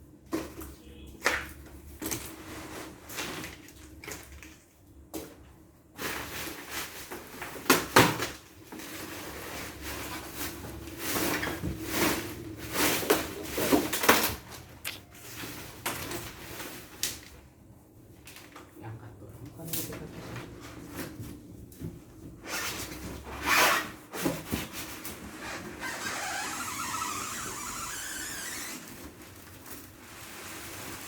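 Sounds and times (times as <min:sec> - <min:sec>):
rustling and scraping: 0:01.9 - 0:04.3, 0:08.6 - 0:17.4, 0:19.8 - 0:31.0.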